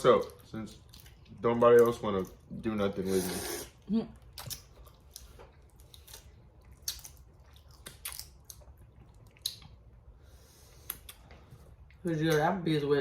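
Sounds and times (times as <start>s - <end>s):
wet chewing: 0.0s - 10.1s.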